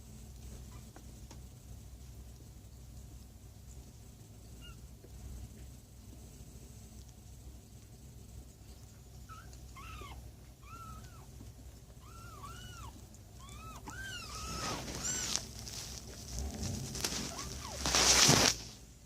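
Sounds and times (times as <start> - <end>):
kittens mewing: 9.2 - 16.2, 16.9 - 18.5.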